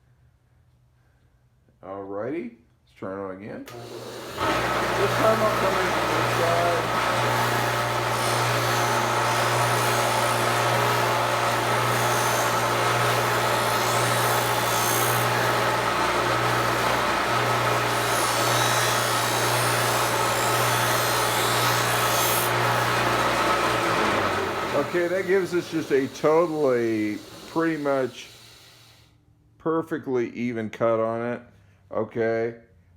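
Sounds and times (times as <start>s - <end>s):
grinding wheel grinding knife: 3.7s - 29.0s
sharpening machine motor hum: 3.7s - 29.0s.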